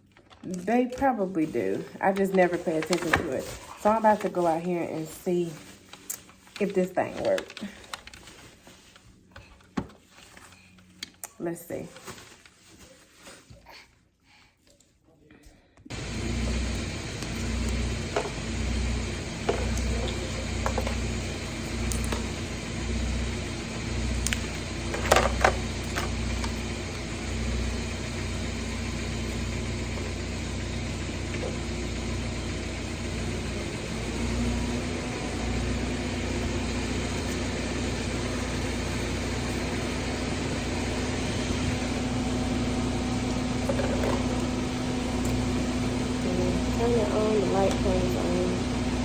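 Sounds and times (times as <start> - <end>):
car engine idling: 15.9 - 49.0.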